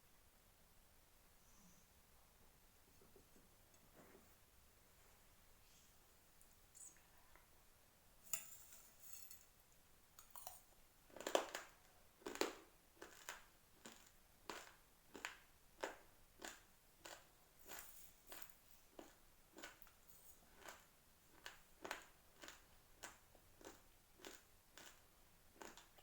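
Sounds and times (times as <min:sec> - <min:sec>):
chewing crunchy rice grains: 0:10.2 - 0:26.0.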